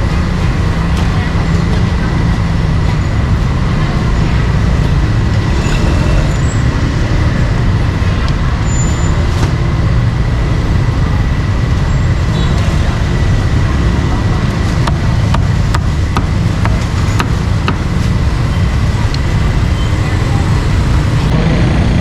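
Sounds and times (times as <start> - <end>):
street traffic rumble: 0.0 - 22.0
thin steady whine: 4.8 - 10.8.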